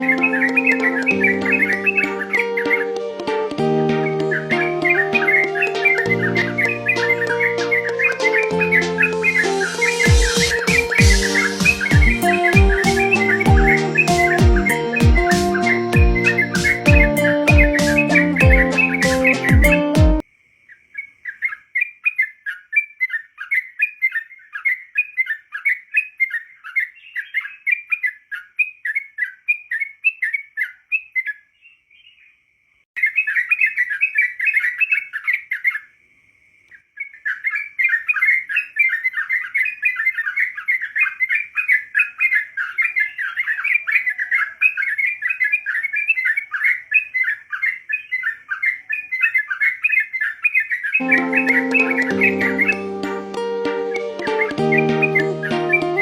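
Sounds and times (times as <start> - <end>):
bird singing bubbly chirps: 0.0 - 3.0, 4.0 - 19.8, 37.2 - 52.8.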